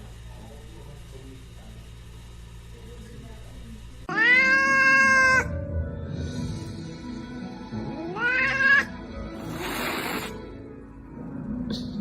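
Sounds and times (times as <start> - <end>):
cat meowing: 4.1 - 5.5, 8.0 - 8.9.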